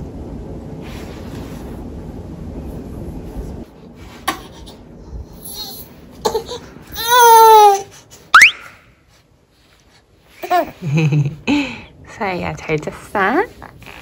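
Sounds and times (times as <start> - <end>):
baby squeaking: 8.4 - 8.7
baby squealing: 8.4 - 8.7.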